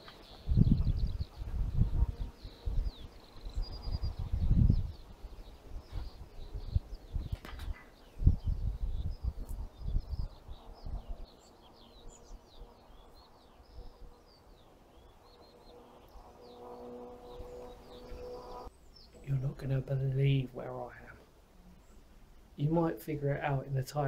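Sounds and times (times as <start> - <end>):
small birds chirping: 0.0 - 24.0
steady hum with even tones: 8.0 - 23.9.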